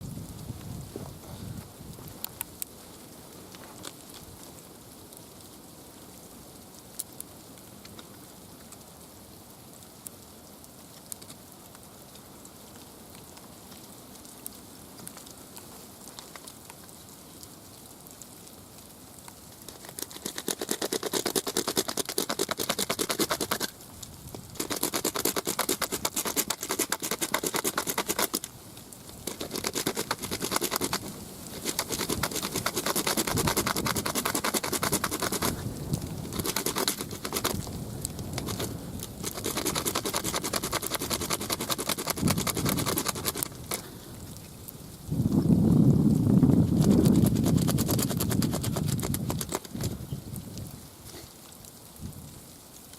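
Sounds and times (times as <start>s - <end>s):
scraping on wooden arrow shaft: 19.7s - 23.8s, 24.5s - 28.5s, 29.1s - 43.9s, 46.6s - 50.0s.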